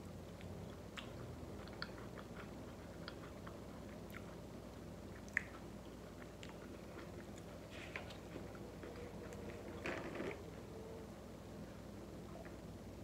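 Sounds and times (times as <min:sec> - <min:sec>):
person chewing food: 0:00.2 - 0:10.4.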